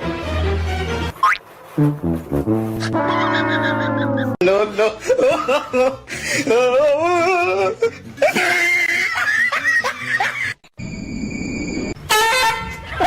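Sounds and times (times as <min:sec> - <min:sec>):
person laughing: 0:02.8 - 0:10.6.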